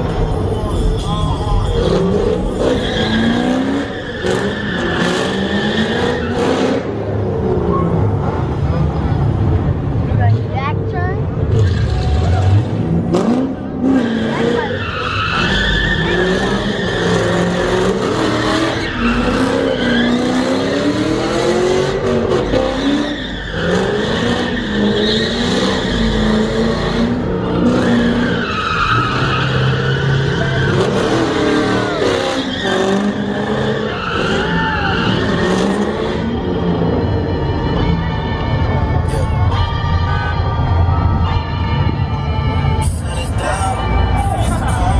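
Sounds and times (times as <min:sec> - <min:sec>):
car tires squealing: 0:00.0 - 0:08.7, 0:11.5 - 0:38.4
car engine revving: 0:00.0 - 0:44.9.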